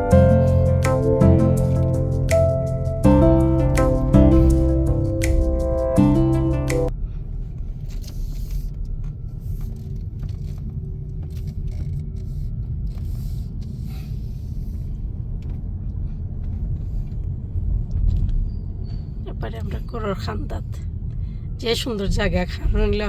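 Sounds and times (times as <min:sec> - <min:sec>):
car driving rumble: 0:00.0 - 0:23.0.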